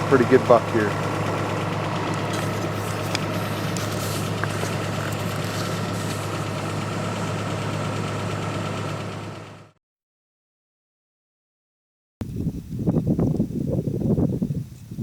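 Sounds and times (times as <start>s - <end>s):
truck engine idling: 0.0s - 9.8s.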